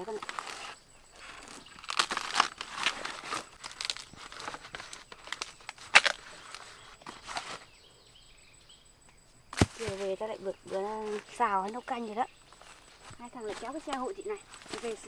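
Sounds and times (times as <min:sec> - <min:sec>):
dry undergrowth rustling and crackling: 0:00.0 - 0:07.8, 0:09.4 - 0:15.0
twig snapping: 0:00.1 - 0:07.5, 0:09.5 - 0:10.1.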